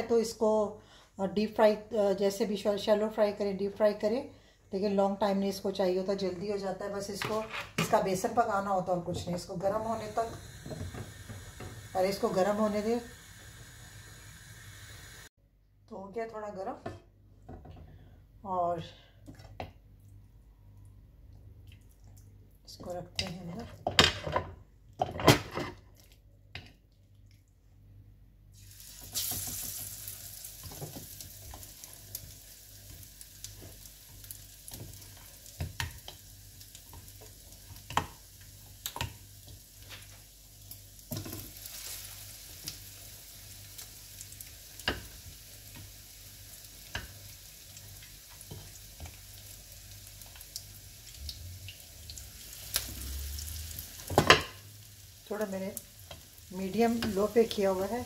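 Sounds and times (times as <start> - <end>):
meat sizzling in hot oil: 9.7 - 15.3, 28.5 - 58.0.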